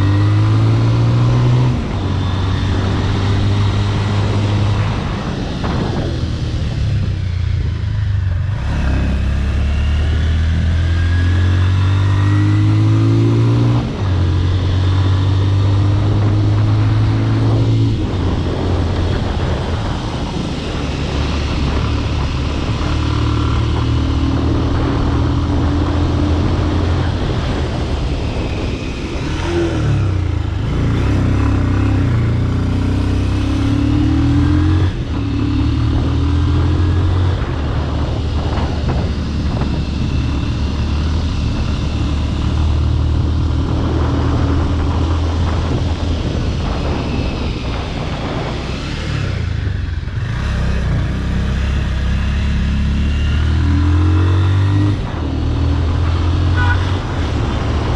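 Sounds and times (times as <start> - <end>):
motorcycle engine revving: 0.0 - 57.9
wind noise: 0.0 - 57.9.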